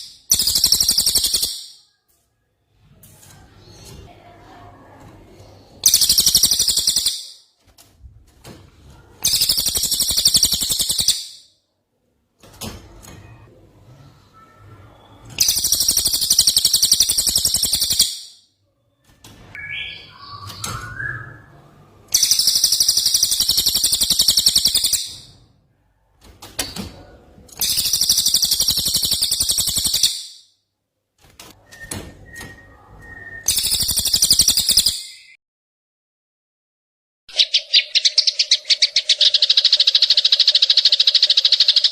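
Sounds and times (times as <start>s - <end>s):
bird trilling harshly: 5.8s - 7.4s, 37.3s - 41.9s
soft whistled bird calls: 19.6s - 21.6s.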